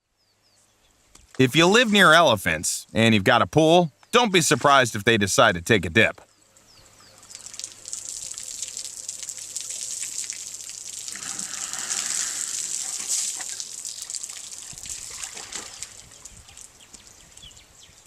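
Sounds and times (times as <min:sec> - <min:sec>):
water splashing in a pool: 0:07.2 - 0:16.8.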